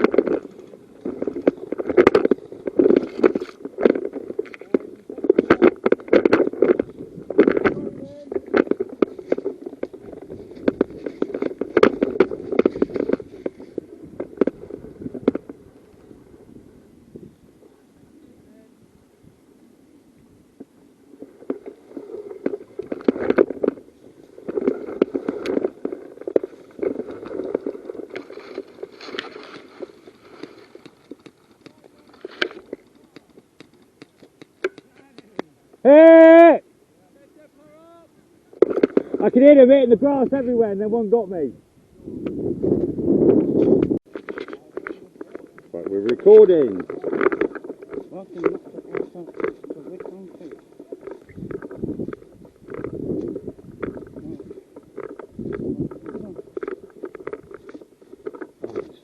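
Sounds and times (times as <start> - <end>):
clothing and kit rustling: 0.0 - 15.8, 21.1 - 35.4, 43.6 - 59.0
rustling and brushing: 21.1 - 35.6
sharp clicks and knocks: 24.4 - 35.6.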